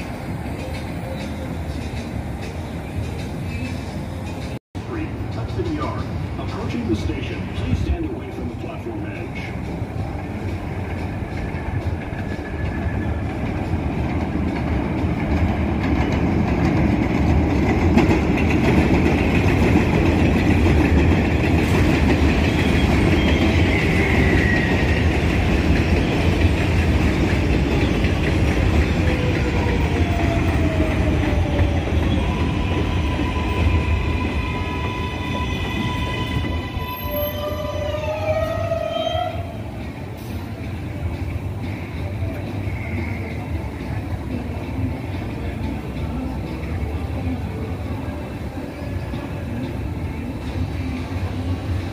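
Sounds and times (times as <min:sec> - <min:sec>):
train clattering over rail joints: 0:00.0 - 0:37.4
train whine sliding down: 0:09.6 - 0:41.0.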